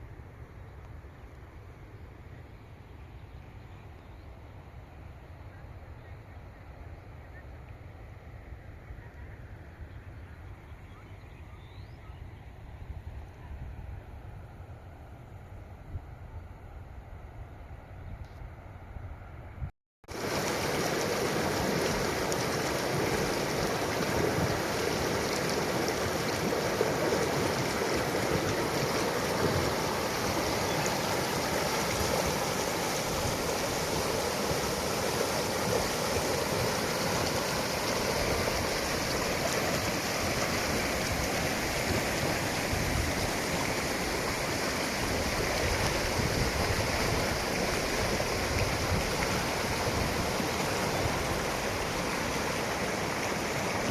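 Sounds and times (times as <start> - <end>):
mountain stream rushing: 20.1 - 53.9.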